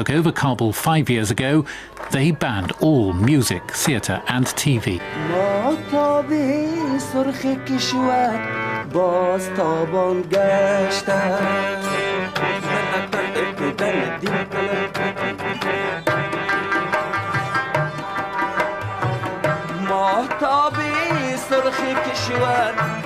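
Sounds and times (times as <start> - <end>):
person singing: 2.2 - 17.8, 19.1 - 23.0
hand drum rhythm: 12.3 - 23.0.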